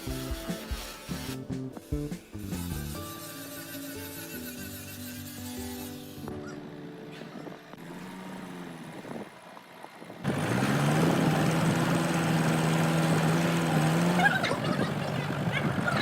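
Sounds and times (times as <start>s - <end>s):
music: 0.0s - 7.7s
machine motor humming: 6.1s - 16.0s.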